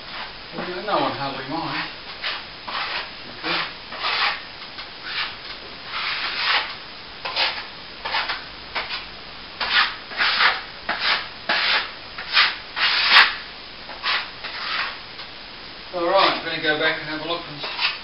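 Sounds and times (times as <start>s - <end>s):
hand tool rubbing plaster wall: 1.6s - 4.4s, 5.0s - 9.0s, 9.6s - 15.0s, 17.5s - 18.0s.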